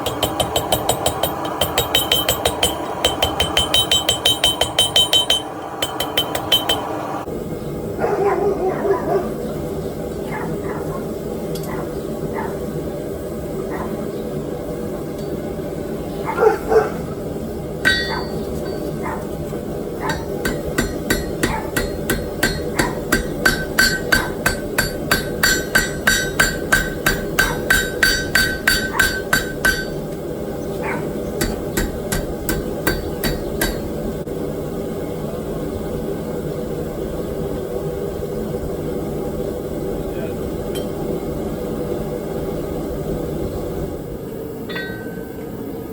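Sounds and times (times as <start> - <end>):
hammer striking steel on anvil: 0.0 - 7.0, 17.8 - 19.0, 20.0 - 30.2, 31.4 - 34.0, 44.7 - 45.3.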